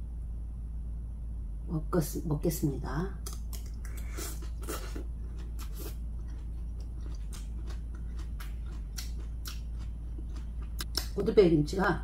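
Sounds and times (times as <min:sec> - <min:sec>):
steady low hum: 0:00.0 - 0:12.0
wet chewing with mouth clicks: 0:03.2 - 0:11.2.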